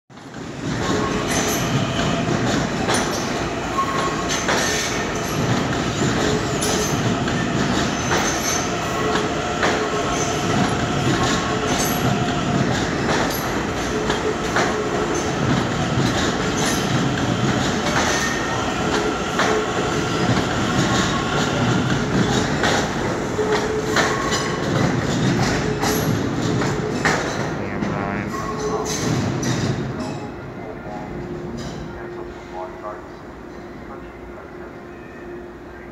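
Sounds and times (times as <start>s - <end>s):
train wheels squealing: 0.8s - 9.2s, 33.5s - 35.8s.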